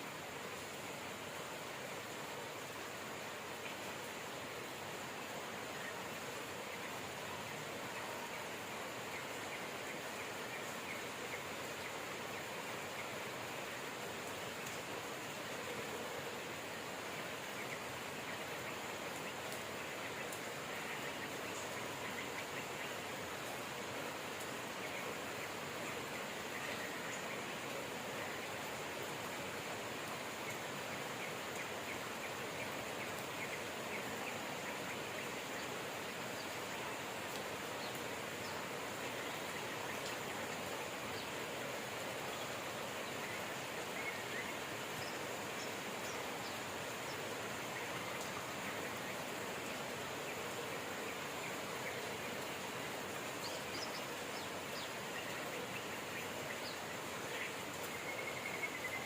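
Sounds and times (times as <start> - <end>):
steady rain: 0.0 - 59.0
birds chirping: 3.5 - 59.0.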